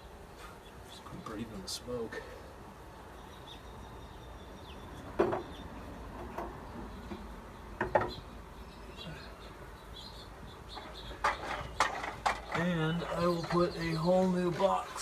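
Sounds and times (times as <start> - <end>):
honeybees buzzing: 0.0 - 15.0
wooden hive parts knocking: 10.8 - 14.8.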